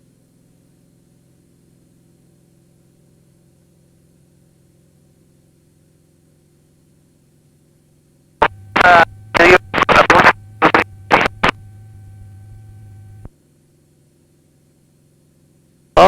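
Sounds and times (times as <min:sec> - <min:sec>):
harsh voice over radio: 0:08.4 - 0:11.6
radio click: 0:08.4 - 0:13.3
steady radio hum: 0:08.4 - 0:13.3.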